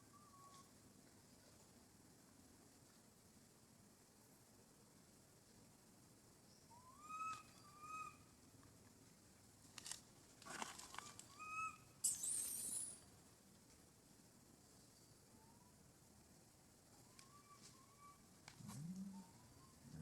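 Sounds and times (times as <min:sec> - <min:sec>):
high hissy screech: 0:12.0 - 0:13.0.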